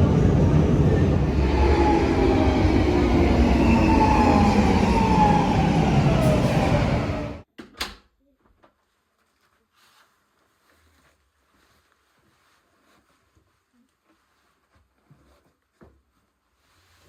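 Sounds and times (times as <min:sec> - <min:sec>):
train rumbling: 0:00.0 - 0:07.4.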